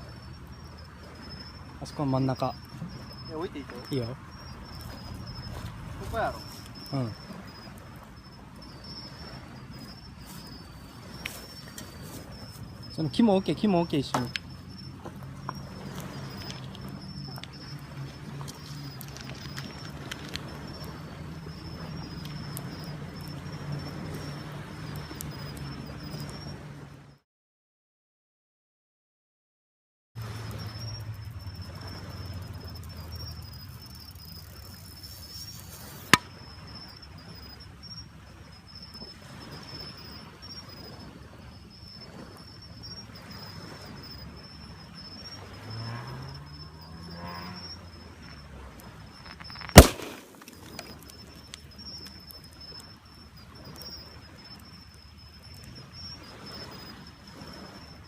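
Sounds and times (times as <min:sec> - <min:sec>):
bonfire crackling: 0:00.0 - 0:27.0, 0:30.2 - 0:58.0
high insect trill: 0:00.0 - 0:27.2, 0:30.2 - 0:58.0
fire popping: 0:00.1 - 0:26.3, 0:30.3 - 0:37.0, 0:48.2 - 0:56.8
gas canister bursting with bang: 0:49.5 - 0:50.5.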